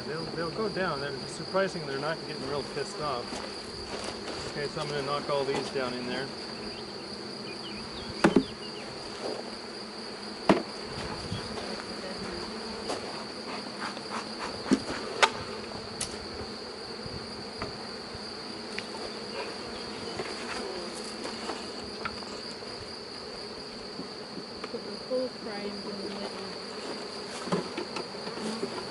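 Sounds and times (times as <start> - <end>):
bee swarm buzzing: 0.0 - 28.9
knocks on hive box: 8.2 - 8.6, 10.4 - 11.1.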